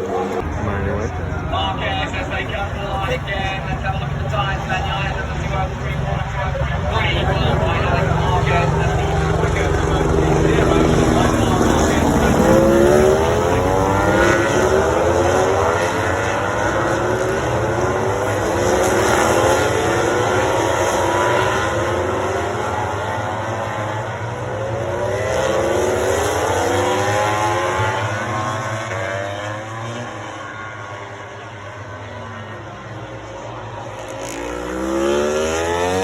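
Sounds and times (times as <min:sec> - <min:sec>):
racing motorcycles accelerating: 0:00.0 - 0:36.0.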